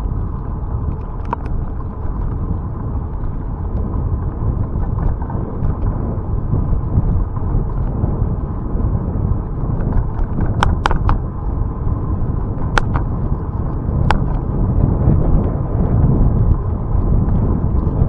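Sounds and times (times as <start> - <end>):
road rumble: 0.0 - 18.0
wind buffeting microphone: 0.0 - 18.0
faint clicks: 9.8 - 11.2.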